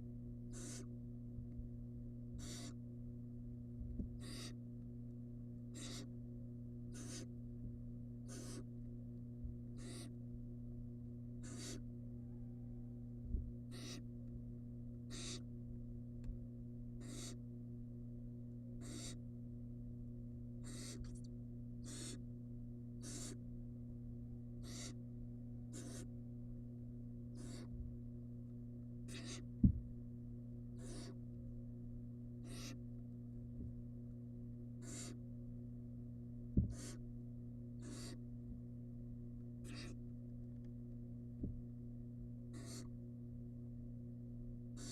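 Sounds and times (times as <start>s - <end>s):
low electrical hum: 0.0s - 44.9s
owl chick hissing calls: 0.5s - 0.9s, 2.4s - 2.8s, 4.2s - 4.6s, 5.7s - 6.1s, 6.9s - 7.3s, 8.3s - 8.7s, 9.8s - 10.2s, 11.4s - 11.8s, 13.7s - 14.0s, 15.1s - 15.5s, 17.0s - 17.4s, 18.8s - 19.2s, 20.6s - 21.0s, 21.8s - 22.2s, 23.0s - 23.4s, 24.6s - 25.0s, 25.7s - 26.1s, 27.3s - 27.7s, 29.1s - 29.5s, 30.8s - 31.2s, 32.4s - 32.8s, 34.8s - 35.2s, 36.7s - 37.0s, 37.8s - 38.2s, 39.6s - 40.0s, 42.6s - 42.9s.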